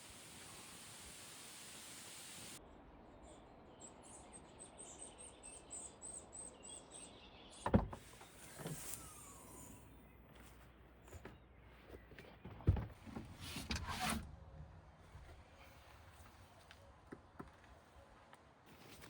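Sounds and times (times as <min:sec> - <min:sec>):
steady hiss: 0:00.0 - 0:02.6.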